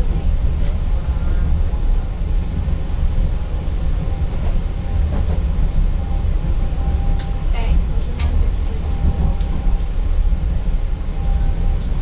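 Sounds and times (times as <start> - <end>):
train rumble from inside: 0.0 - 12.0.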